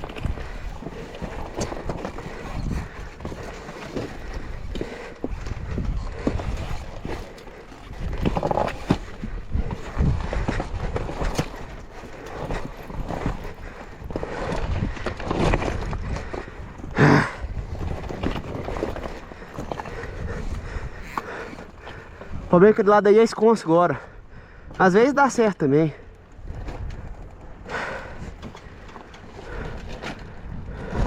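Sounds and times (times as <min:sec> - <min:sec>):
rough noisy background: 0:00.0 - 0:31.0.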